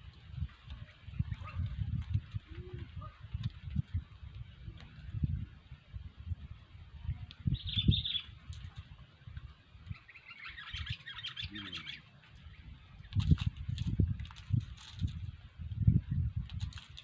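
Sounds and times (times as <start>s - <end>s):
bird calling and chattering: 7.4s - 8.8s, 9.8s - 13.3s.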